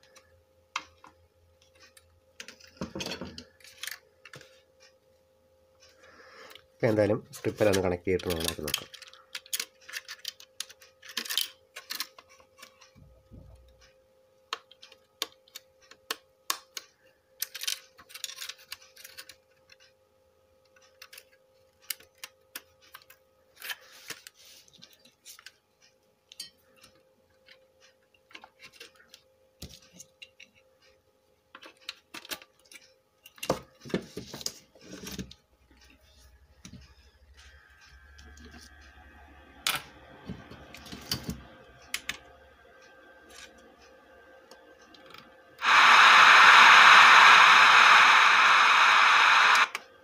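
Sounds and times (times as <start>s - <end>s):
faint steady hum: 0.0s - 50.0s
connectors clicking and rattling: 7.4s - 12.9s.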